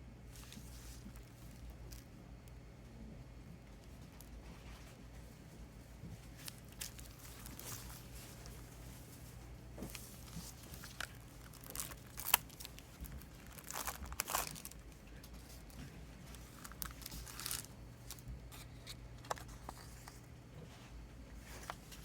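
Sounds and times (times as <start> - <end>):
plastic packaging crinkling: 0.4 - 2.2, 6.3 - 9.1, 9.8 - 20.2
packaging clicks: 6.4 - 8.6, 10.2 - 15.0, 16.3 - 19.9.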